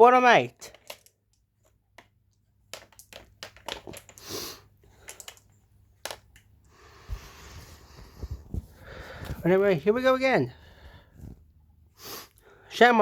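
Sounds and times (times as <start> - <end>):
small handling clicks and knocks: 0.6 - 6.5.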